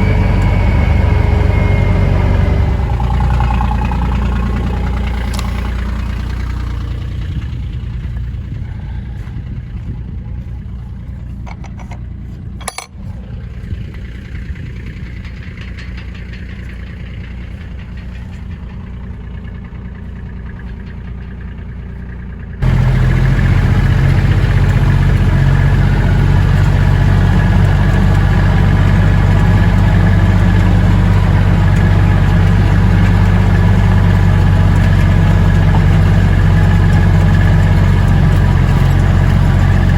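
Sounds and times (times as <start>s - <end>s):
loud close engine: 0.0s - 10.6s, 22.6s - 39.9s
vehicle engine running: 0.0s - 39.9s.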